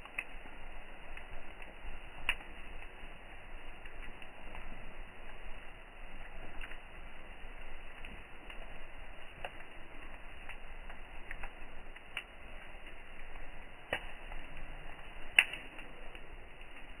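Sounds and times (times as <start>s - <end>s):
faint hiss: 0.0s - 17.0s
wood campfire crackling: 0.0s - 17.0s.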